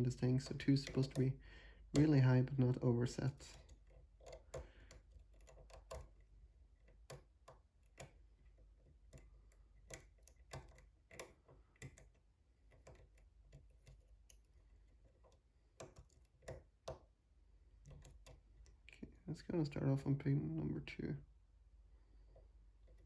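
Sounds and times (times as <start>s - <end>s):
metallic clicks of lock picking: 3.5s - 6.2s, 9.1s - 14.5s.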